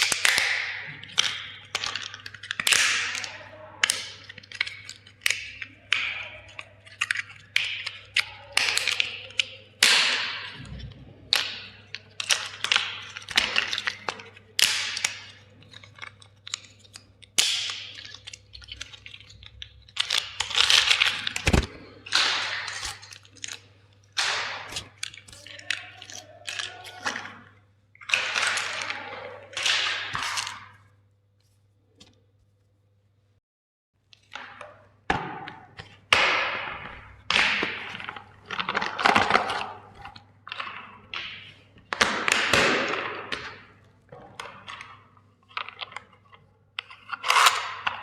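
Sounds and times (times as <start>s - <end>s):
hard plastic cracking and crunching: 0.0s - 31.0s, 34.0s - 48.0s.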